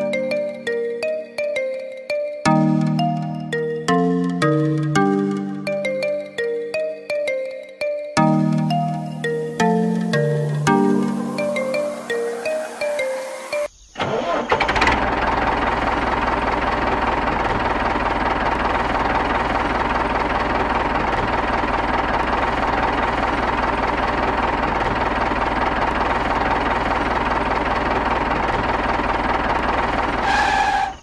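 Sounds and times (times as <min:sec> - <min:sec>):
toy tractor engine running: 0:14.0 - 0:31.0.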